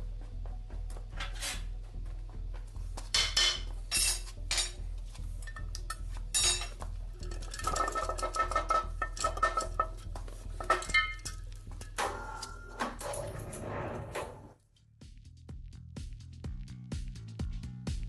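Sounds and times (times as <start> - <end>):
metal tools clinking and clattering: 3.2 - 4.8, 5.4 - 13.6.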